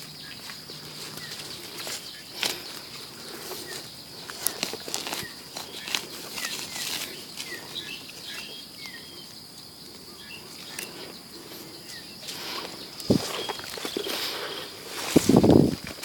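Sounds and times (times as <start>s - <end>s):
footsteps in leaf litter: 0.0s - 8.4s, 12.2s - 16.0s
small bird chirping: 0.0s - 15.5s.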